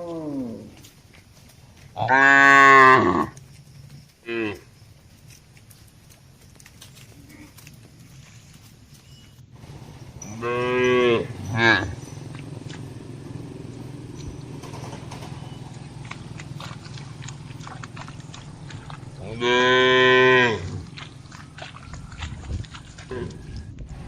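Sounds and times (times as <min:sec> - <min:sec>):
cattle mooing: 0:02.0 - 0:03.4, 0:09.6 - 0:14.3, 0:15.5 - 0:22.2.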